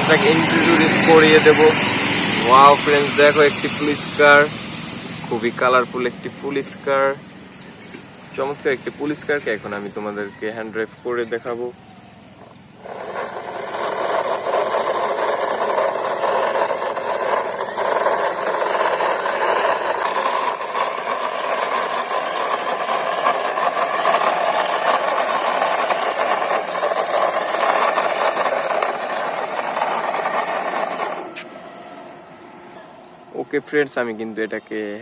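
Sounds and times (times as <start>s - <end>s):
toy car rattling rumble: 0.0s - 7.2s, 7.8s - 31.6s.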